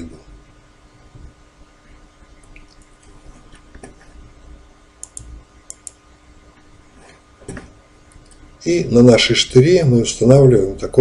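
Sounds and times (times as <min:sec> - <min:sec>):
faint steady hum: 0:00.0 - 0:11.0
sharp light clicks: 0:05.0 - 0:06.0.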